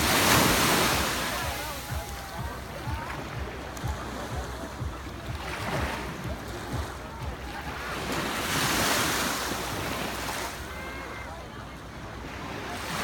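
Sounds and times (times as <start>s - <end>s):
sea water lapping: 0.0s - 13.0s.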